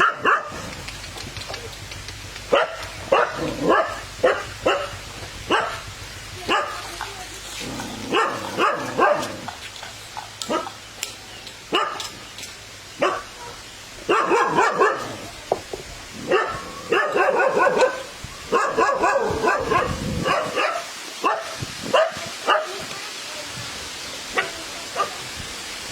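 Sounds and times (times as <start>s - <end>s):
dog barking: 0.0s - 0.7s, 2.5s - 5.9s, 6.5s - 6.8s, 8.1s - 9.5s, 10.4s - 10.8s, 11.7s - 12.1s, 13.0s - 15.2s, 16.2s - 22.8s, 24.3s - 25.2s.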